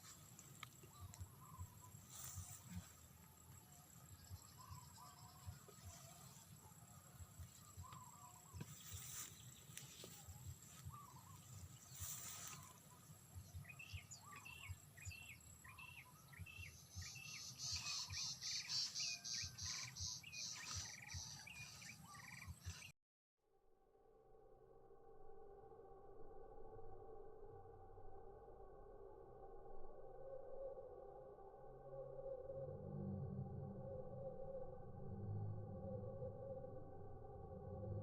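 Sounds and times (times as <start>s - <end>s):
bird calling: 4.2s - 6.5s, 7.4s - 22.9s
high-pitched pulsing bird call: 7.4s - 22.9s.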